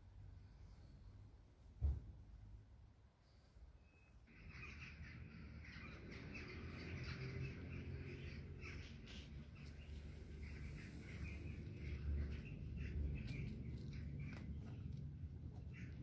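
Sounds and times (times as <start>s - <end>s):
small birds chirping: 3.2s - 16.0s
steady low rumble: 4.4s - 16.0s.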